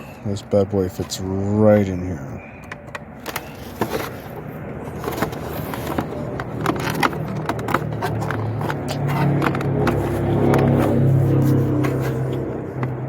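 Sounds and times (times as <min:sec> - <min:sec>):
plastic parts clicking and knocking: 0:02.6 - 0:11.0.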